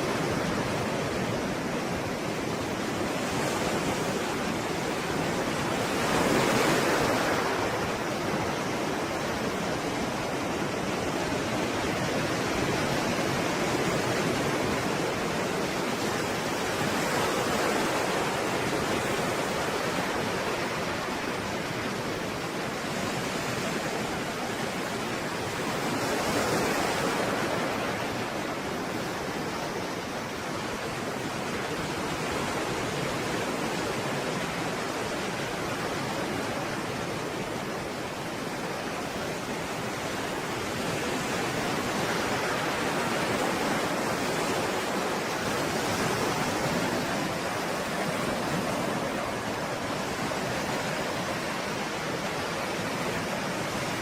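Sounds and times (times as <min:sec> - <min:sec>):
stormy sea waves breaking: 0:00.0 - 0:54.0.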